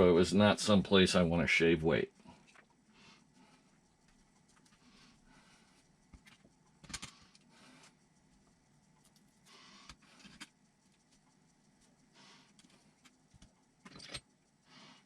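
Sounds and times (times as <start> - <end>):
small parts clicking and clacking: 5.8 - 15.0.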